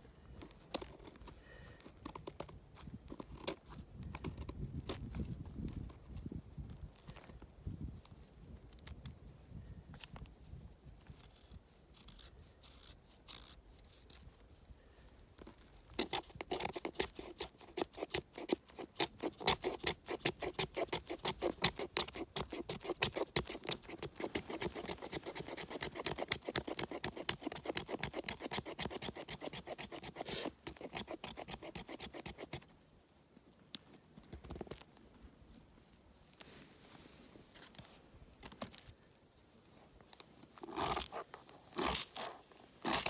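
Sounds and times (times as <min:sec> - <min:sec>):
wood being scraped into shavings: 0:15.9 - 0:32.7, 0:40.6 - 0:43.0.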